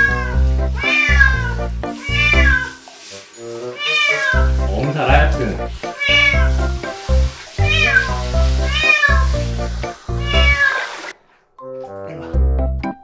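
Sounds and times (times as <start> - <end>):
cat meowing loudly: 0.0 - 2.8, 3.7 - 4.6, 5.9 - 6.5, 7.7 - 9.4, 10.2 - 11.0
background music: 0.0 - 10.6, 11.6 - 13.0.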